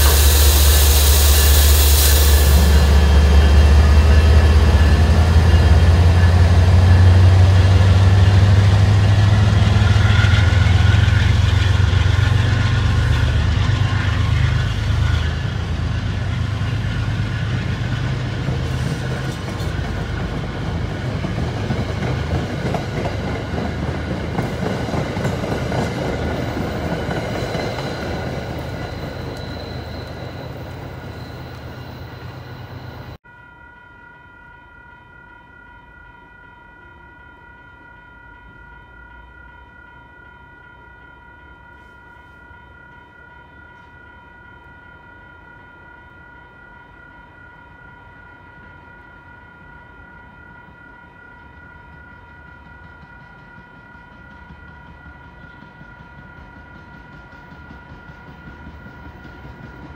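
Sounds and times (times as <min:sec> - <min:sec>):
diesel locomotive engine rumbling: 0:00.0 - 0:33.2, 0:50.6 - 0:59.9
wheels clacking on rails: 0:00.0 - 0:33.2, 0:51.4 - 0:59.9
steady high ringing: 0:00.0 - 0:59.9.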